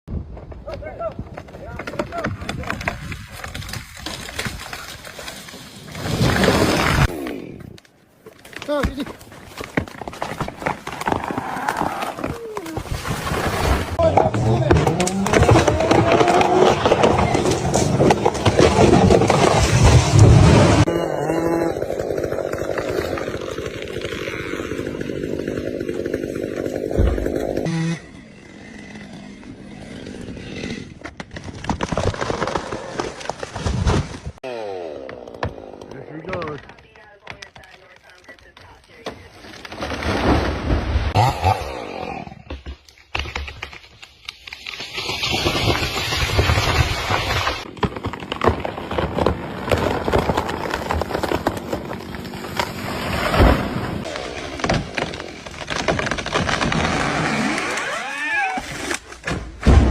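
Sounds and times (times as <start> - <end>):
crackling and knocking: 0.1 - 7.0, 7.8 - 13.0, 14.0 - 20.5, 35.1 - 40.2, 42.4 - 57.8
chainsaw running: 20.7 - 30.2.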